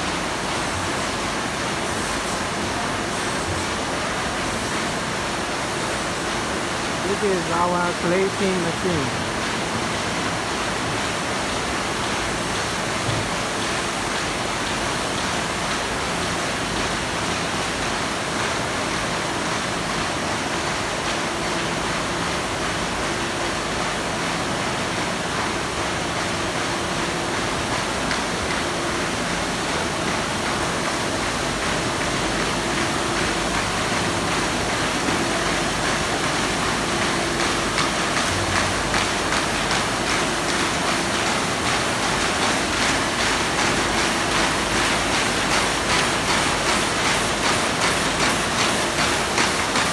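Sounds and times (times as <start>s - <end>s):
paper folding machinery whirring: 30.2s - 49.9s.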